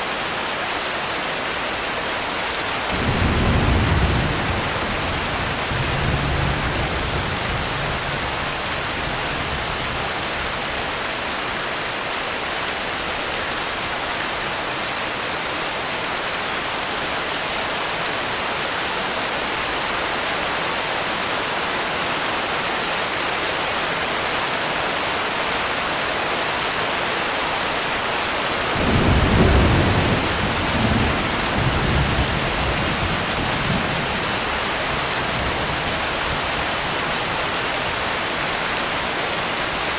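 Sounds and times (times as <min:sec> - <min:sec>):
heavy rain hissing: 0:00.0 - 0:18.6, 0:23.0 - 0:39.9
thunder rumbling: 0:02.9 - 0:10.2, 0:28.7 - 0:36.6.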